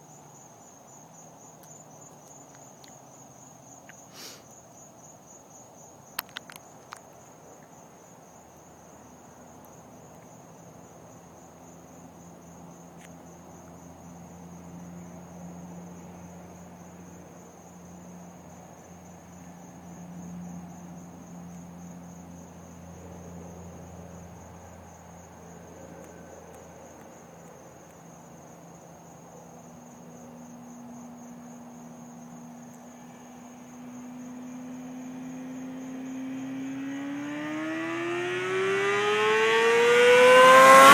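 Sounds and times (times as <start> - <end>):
crickets chirping: 0.0 - 40.9
distant motorcycle engine: 32.9 - 40.9.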